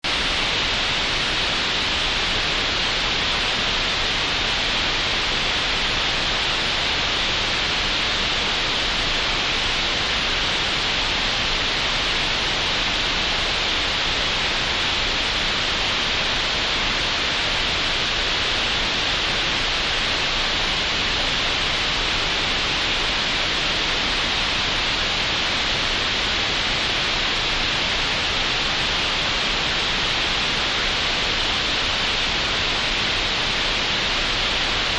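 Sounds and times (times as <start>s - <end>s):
steady green noise hiss: 0.0s - 34.9s.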